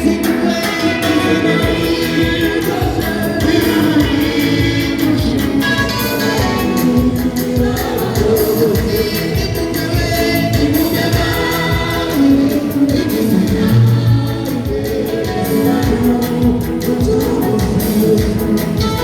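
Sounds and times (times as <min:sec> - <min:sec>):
choir singing gospel song: 0:00.0 - 0:19.0
instrumental backing with beat: 0:00.0 - 0:19.0.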